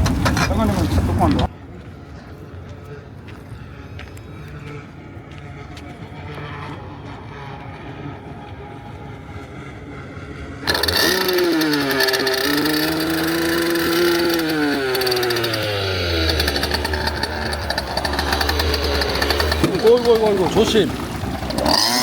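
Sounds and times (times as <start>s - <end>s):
motorized surfboard engine running: 5.6s - 22.0s.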